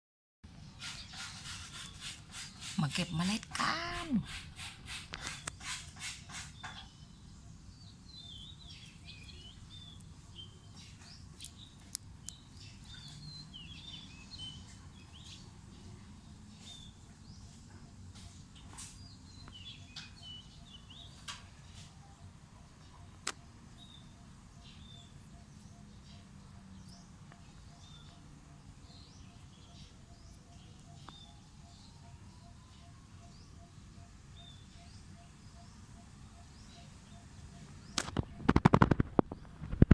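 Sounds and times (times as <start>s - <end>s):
small birds chirping: 0.6s - 39.9s
sharp clicks: 37.9s - 39.9s.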